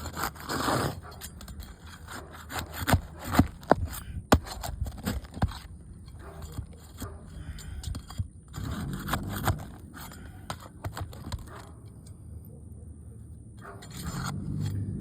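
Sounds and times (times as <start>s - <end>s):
roof shingles scraping and crackling: 0.0s - 11.6s.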